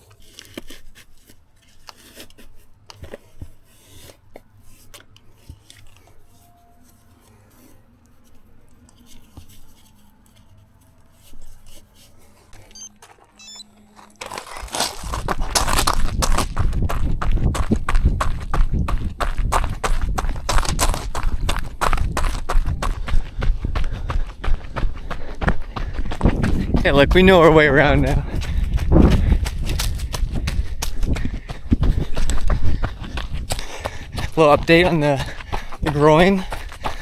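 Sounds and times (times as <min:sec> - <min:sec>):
snack wrapper rustling: 0:00.0 - 0:06.3, 0:11.2 - 0:16.6
rapid running footsteps: 0:12.5 - 0:37.0.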